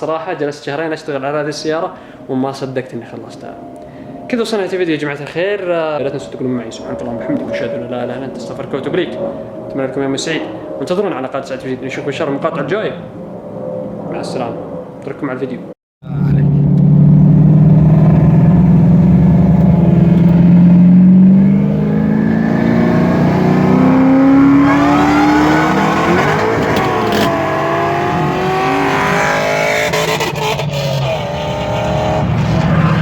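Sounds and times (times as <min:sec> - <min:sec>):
supercharger whine: 0:01.4 - 0:33.0
car engine accelerating hard: 0:16.1 - 0:33.0.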